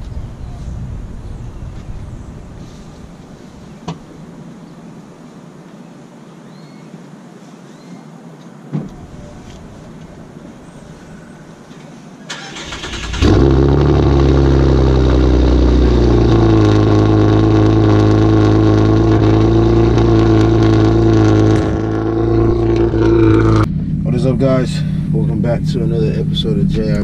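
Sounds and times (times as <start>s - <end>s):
car engine cranking and running: 12.3s - 27.0s.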